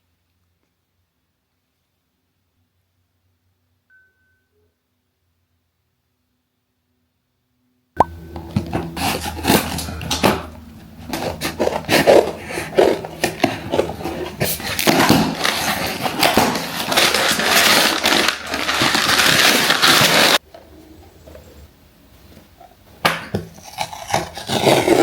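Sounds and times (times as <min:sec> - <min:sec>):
packaging rustling and crinkling: 0:08.6 - 0:20.4.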